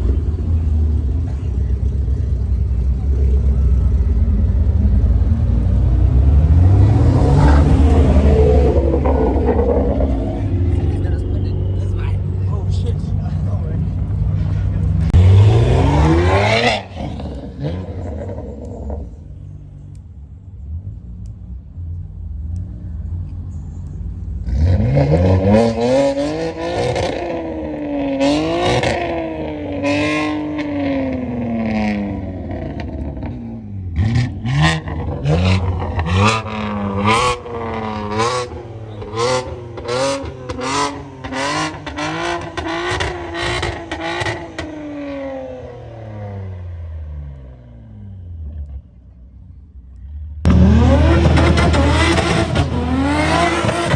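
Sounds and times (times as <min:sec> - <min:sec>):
car engine revving hard: 0:15.1 - 0:18.9, 0:33.9 - 0:46.5, 0:50.4 - 0:53.9.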